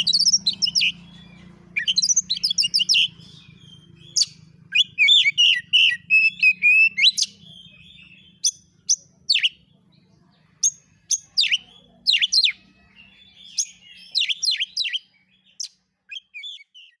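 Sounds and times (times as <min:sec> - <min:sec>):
bird warbling and whistling: 0:00.0 - 0:09.6, 0:10.6 - 0:17.0.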